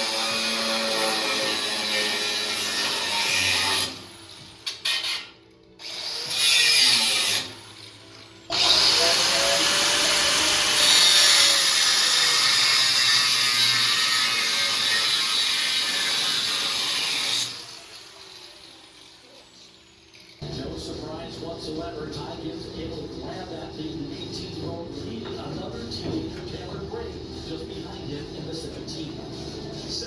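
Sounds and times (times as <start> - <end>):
power tool running: 0.0 - 20.4.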